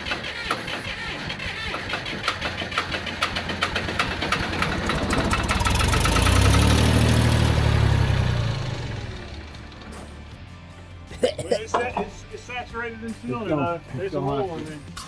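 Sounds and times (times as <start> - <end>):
bulldozer engine cranking and running: 0.0 - 10.6.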